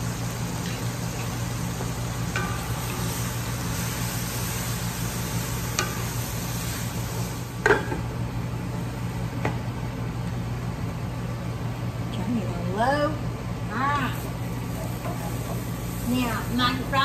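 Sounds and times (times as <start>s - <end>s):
meat and vegetables sizzling: 0.0s - 9.3s, 13.7s - 17.0s.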